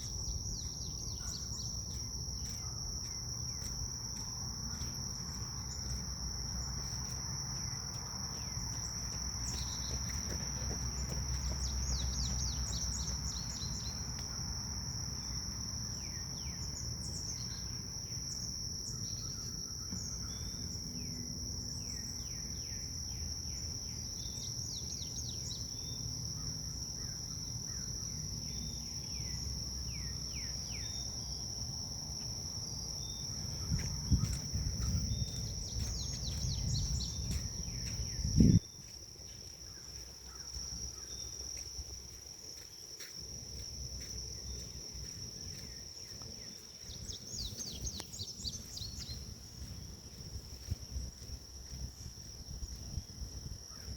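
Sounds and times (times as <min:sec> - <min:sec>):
small birds chirping: 0:00.0 - 0:03.7, 0:08.8 - 0:14.1, 0:33.0 - 0:38.6, 0:46.4 - 0:49.7
insects trilling: 0:00.0 - 0:53.9
low wind rumble: 0:33.2 - 0:38.8.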